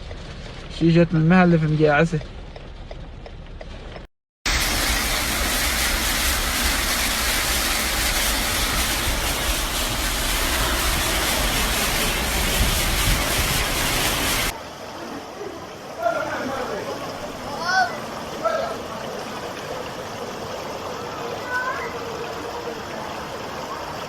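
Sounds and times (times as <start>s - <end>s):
deep rumble: 0.0s - 14.5s
heavy rainstorm: 4.5s - 23.9s.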